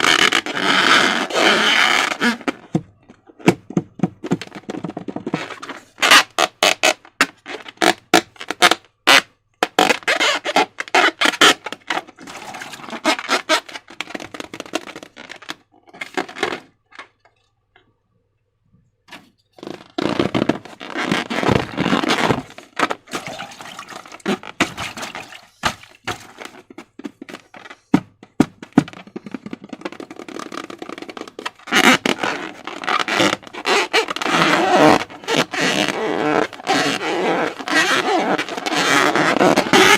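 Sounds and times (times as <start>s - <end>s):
slime squelching and crackling: 21.1s - 26.6s.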